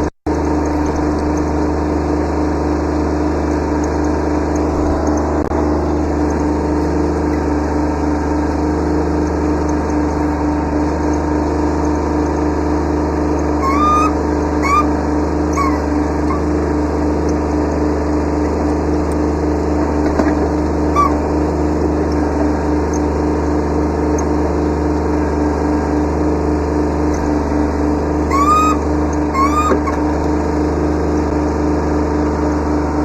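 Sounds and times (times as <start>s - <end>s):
diesel tractor engine running: 0.0s - 33.0s
short rising squeaks: 13.4s - 16.6s, 20.6s - 21.4s, 28.2s - 30.3s.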